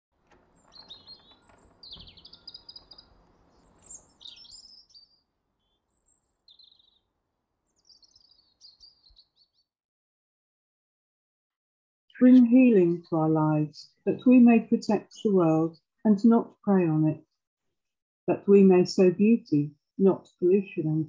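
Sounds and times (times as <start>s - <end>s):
birdsong with chirps and trills: 0.5s - 9.8s.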